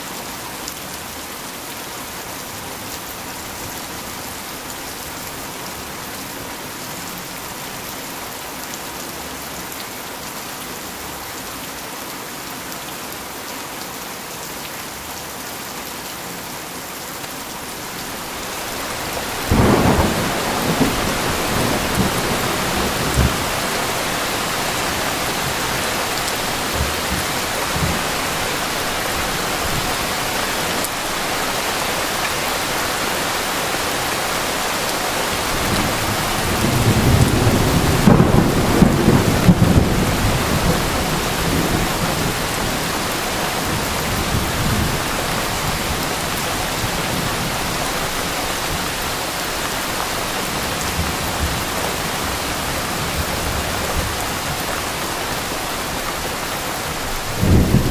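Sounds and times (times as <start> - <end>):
steady rain: 0.0 - 57.9
thunder rumbling: 18.4 - 30.2, 35.3 - 45.1, 57.1 - 57.9.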